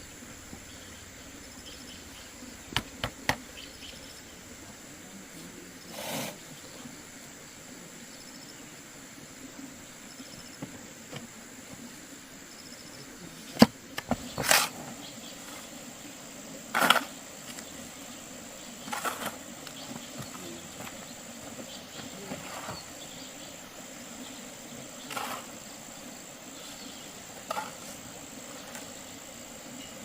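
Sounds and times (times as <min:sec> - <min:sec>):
faint chirps: 0:00.0 - 0:30.0
insects droning: 0:00.0 - 0:30.0
rustling or scraping: 0:13.5 - 0:15.7, 0:18.8 - 0:21.0, 0:22.1 - 0:23.0, 0:25.1 - 0:25.6, 0:27.4 - 0:28.9.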